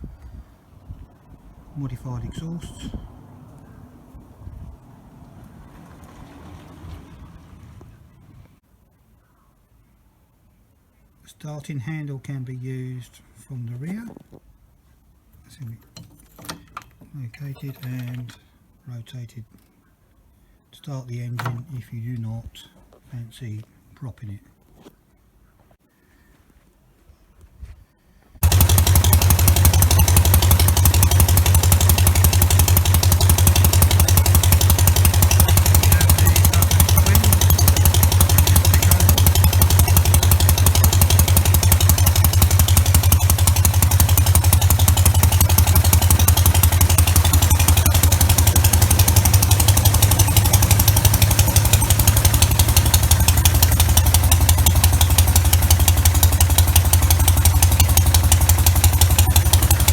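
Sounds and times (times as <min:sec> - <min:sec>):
stationary engine running: 0:28.4 - 0:59.9.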